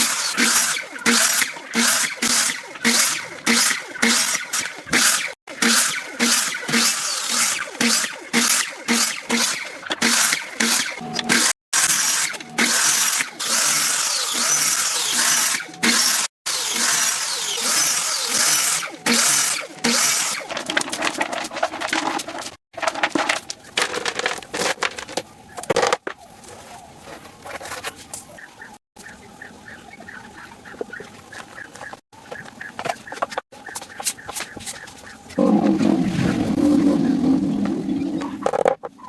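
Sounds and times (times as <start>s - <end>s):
woodworking tool cutting: 0.0s - 22.4s
quick knocks and scrapes: 20.4s - 28.3s.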